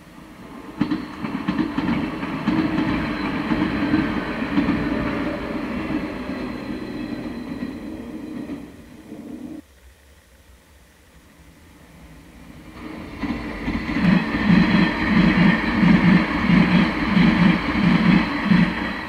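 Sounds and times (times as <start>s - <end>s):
train wheels clacking over rail joints: 0.7s - 8.8s, 12.7s - 19.0s.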